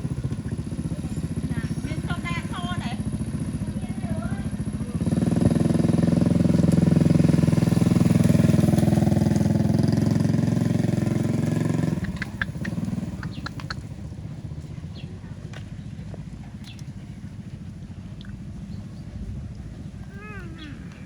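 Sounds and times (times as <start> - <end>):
engine running: 0.0 - 21.0
sharp clicks: 11.9 - 13.9.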